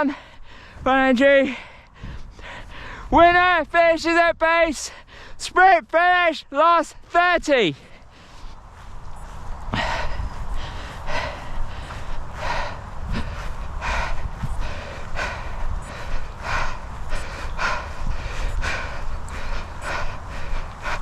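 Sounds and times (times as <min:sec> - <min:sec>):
steady low rumble: 0:00.0 - 0:03.3, 0:07.7 - 0:21.0
runner breathing hard: 0:00.0 - 0:21.0.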